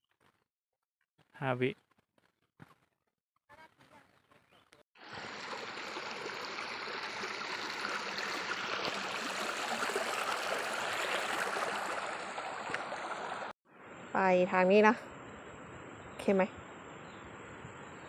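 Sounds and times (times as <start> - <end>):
water rushing over rocks: 5.0 - 13.5.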